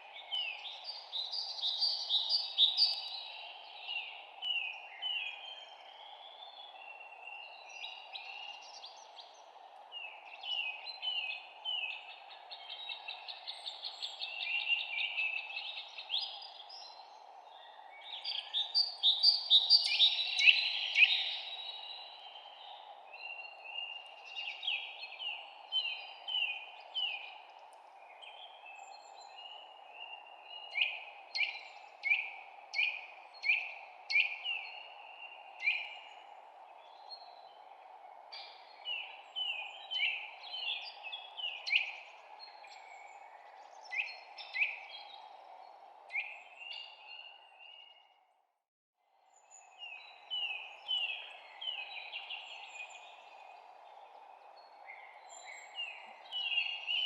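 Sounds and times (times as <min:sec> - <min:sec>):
songbirds chirping: 0:00.0 - 0:48.4, 0:49.1 - 0:57.0.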